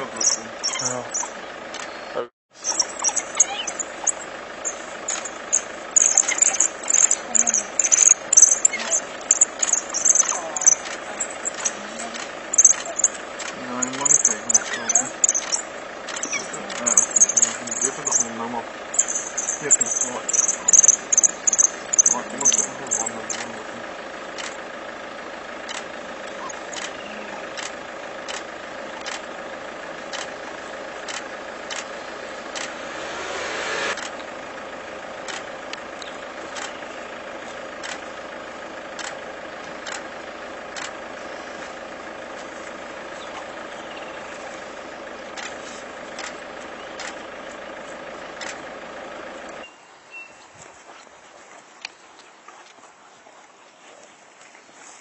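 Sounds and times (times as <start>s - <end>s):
vehicle engine idling: 0.0s - 55.0s
sharp ticks: 0.1s - 2.0s, 2.6s - 23.6s, 24.3s - 24.6s, 25.6s - 29.4s, 30.0s - 32.8s, 35.2s - 36.9s, 37.8s - 38.2s, 38.9s - 40.1s, 40.7s - 42.5s, 45.3s - 47.3s, 48.3s - 48.6s
rush of noise: 31.9s - 34.3s.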